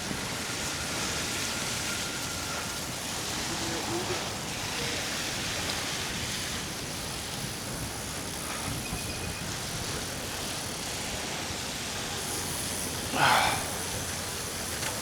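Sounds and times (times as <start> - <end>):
tyres on wet road: 10.0 - 15.0
traffic: 11.4 - 15.0.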